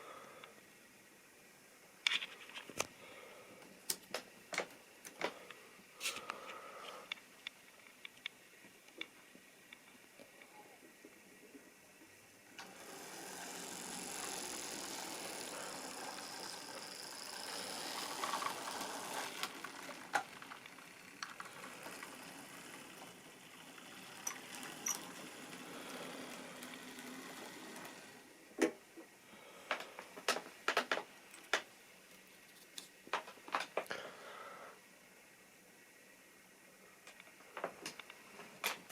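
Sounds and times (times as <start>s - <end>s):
model train running on track: 12.6s - 28.4s.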